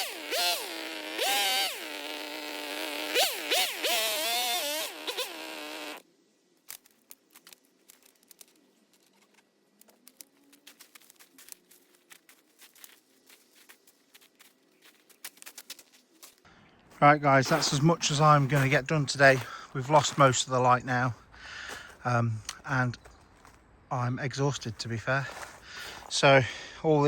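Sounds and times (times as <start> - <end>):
chainsaw revving: 0.0 - 6.0.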